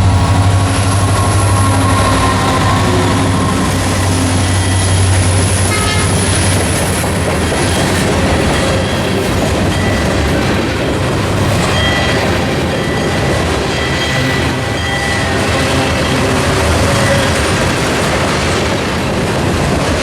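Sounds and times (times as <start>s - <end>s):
low drone: 0.0s - 8.8s
train rumbling on rails: 0.0s - 20.0s
faint high squeals: 1.0s - 6.3s.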